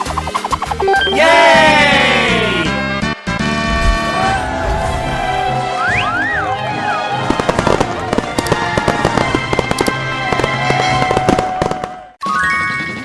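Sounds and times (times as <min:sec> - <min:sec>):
background music: 0:00.0 - 0:13.0
whistling glides: 0:04.3 - 0:07.0
rapid crackling pops: 0:07.3 - 0:12.0.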